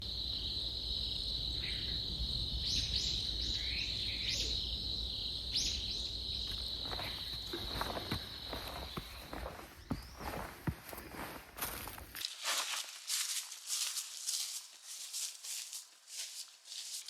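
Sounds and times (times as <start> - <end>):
high-pitched insect trill: 0.0 - 10.5
steps on leaves: 6.8 - 17.0.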